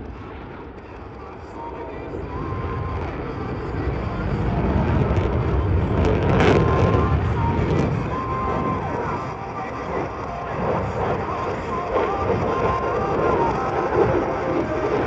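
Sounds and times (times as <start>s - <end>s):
jet engines roaring past: 0.0s - 15.0s.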